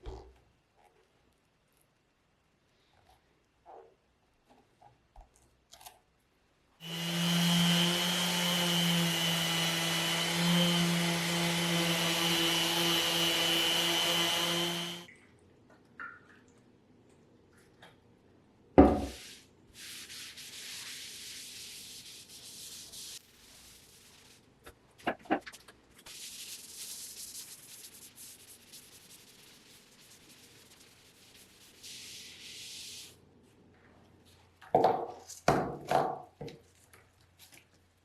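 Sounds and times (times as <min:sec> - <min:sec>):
power sander on wood: 0:06.8 - 0:15.1
quiet hiss: 0:16.5 - 0:34.6
knock: 0:18.8 - 0:19.2.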